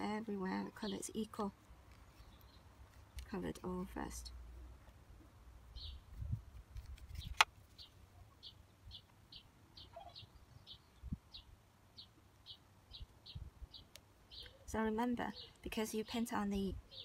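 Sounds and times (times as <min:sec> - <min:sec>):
small bird chirping: 0:00.5 - 0:03.3, 0:05.7 - 0:17.0
wind rumble on microphone: 0:05.8 - 0:07.4, 0:10.5 - 0:11.4, 0:12.9 - 0:13.8.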